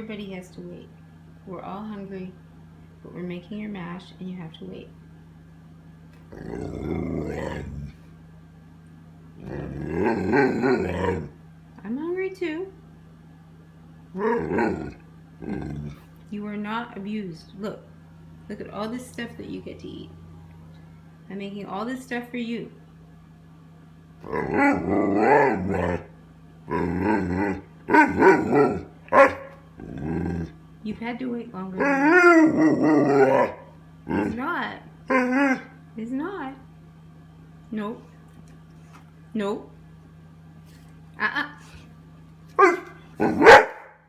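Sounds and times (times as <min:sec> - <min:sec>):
dog vocalizing: 0:06.3 - 0:08.0, 0:09.4 - 0:11.4, 0:14.2 - 0:16.1, 0:24.2 - 0:26.1, 0:26.7 - 0:30.6, 0:31.8 - 0:34.5, 0:35.1 - 0:35.7, 0:42.6 - 0:43.9.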